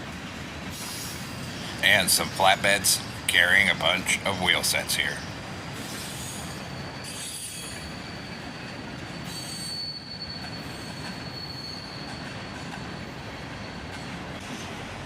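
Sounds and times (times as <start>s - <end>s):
train wheels rumbling on rails: 0.0s - 15.0s
high-pitched wheel squeal: 5.9s - 14.1s.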